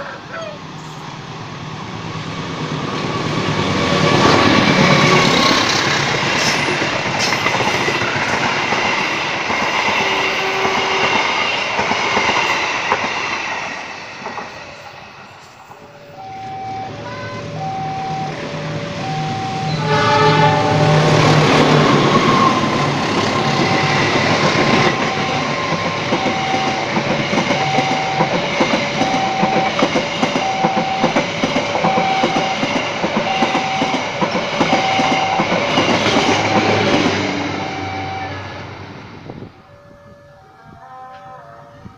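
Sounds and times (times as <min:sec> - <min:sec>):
train wheels clattering: 0:02.9 - 0:15.8, 0:21.1 - 0:37.5
train horn blast: 0:09.9 - 0:11.6, 0:18.9 - 0:24.0, 0:39.7 - 0:41.9
level crossing alarm: 0:14.8 - 0:38.7, 0:39.6 - 0:41.9.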